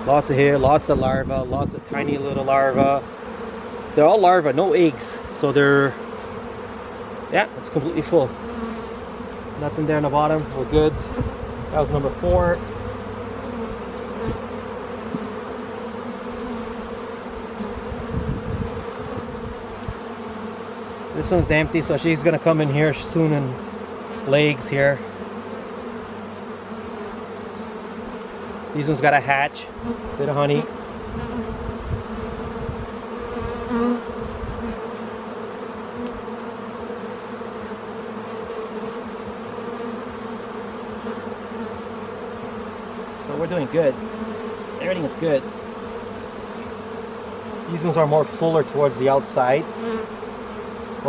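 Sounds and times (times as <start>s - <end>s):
bees buzzing: 0.0s - 51.0s.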